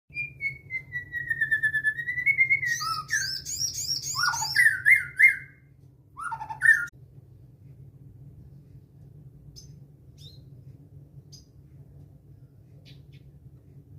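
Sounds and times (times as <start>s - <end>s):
songbird trilling and chirping: 0.1s - 5.6s, 6.2s - 6.9s, 9.5s - 10.6s, 12.8s - 13.4s
faint low hum: 0.1s - 13.9s.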